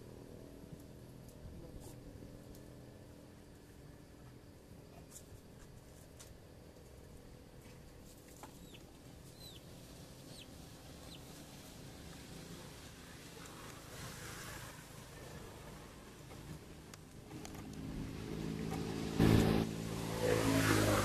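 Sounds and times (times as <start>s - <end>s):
low outdoor rumble: 0.0s - 21.0s
small bird chirping: 8.3s - 11.6s.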